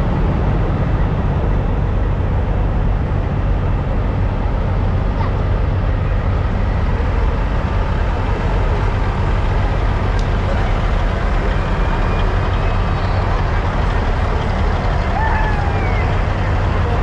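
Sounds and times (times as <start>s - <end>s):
diesel truck engines idling: 0.0s - 17.0s
crowd murmuring: 6.3s - 17.0s.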